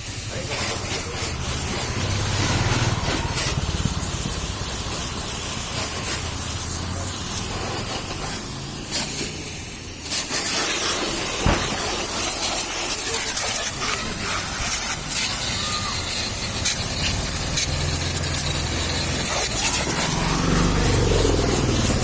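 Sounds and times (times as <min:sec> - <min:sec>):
pressure washer spraying water: 0:00.0 - 0:22.0
sharp knock: 0:11.4 - 0:11.9.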